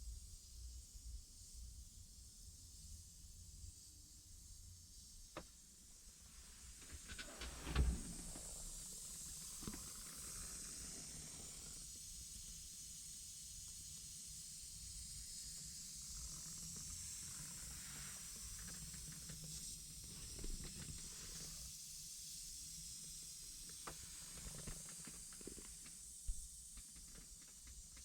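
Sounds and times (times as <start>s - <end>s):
steady hiss: 0.0s - 28.0s
light clicks and rustles: 6.3s - 10.4s, 23.7s - 28.0s.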